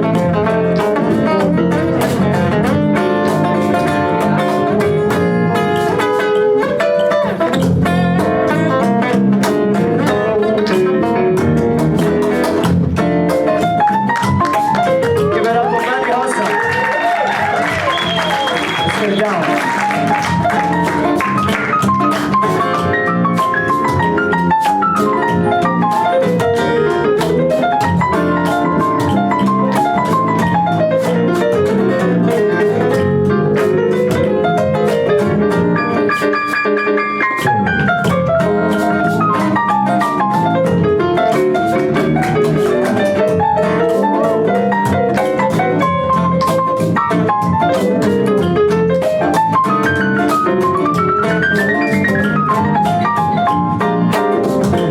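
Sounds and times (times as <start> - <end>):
bass and drums: 0.0 - 15.6, 16.8 - 36.1, 37.4 - 54.9
keyboard solo: 13.8 - 54.9.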